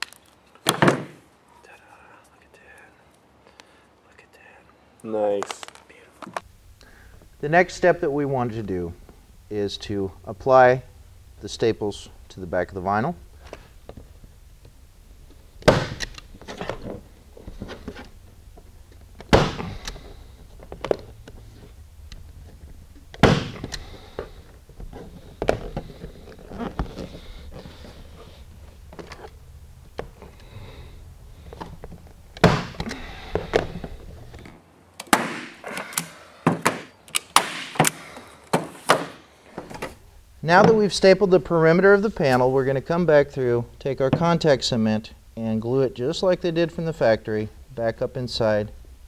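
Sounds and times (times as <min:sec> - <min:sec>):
soft handling sounds: 0:16.2 - 0:34.6.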